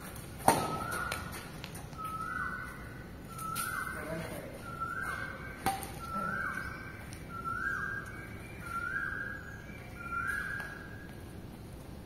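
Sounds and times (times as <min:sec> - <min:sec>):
bird whistling: 0:02.0 - 0:11.0.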